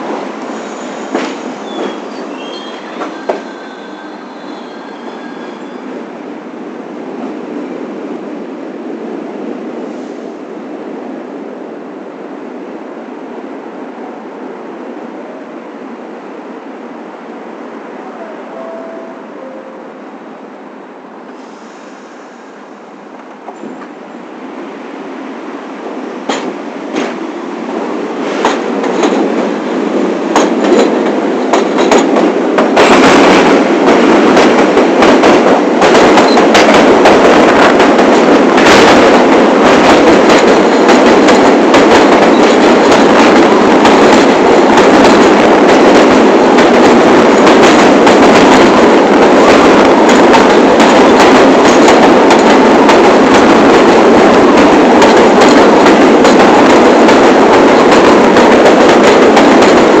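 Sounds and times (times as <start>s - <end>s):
subway train on rails: 0.0s - 60.0s.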